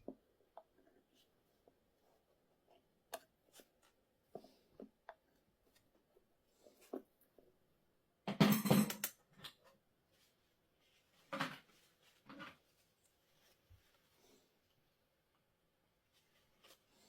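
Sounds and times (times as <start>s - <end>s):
metal tools clattering on wheel: 8.4s - 9.1s.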